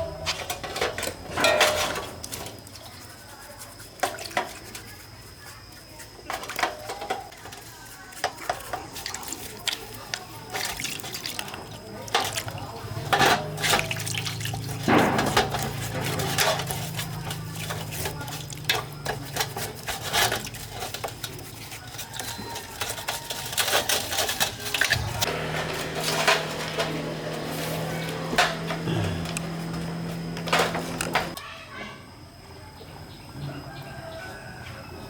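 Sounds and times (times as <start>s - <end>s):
liquid sloshing: 6.2s - 31.4s.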